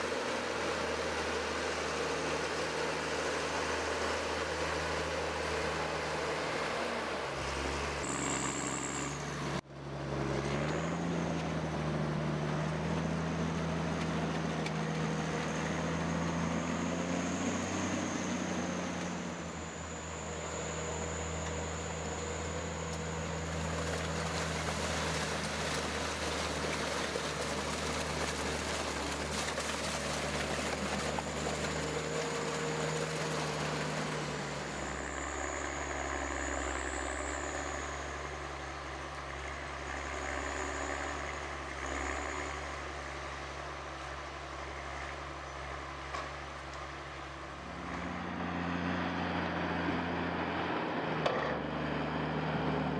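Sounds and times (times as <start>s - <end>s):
engine-driven machine running: 0.0s - 52.9s.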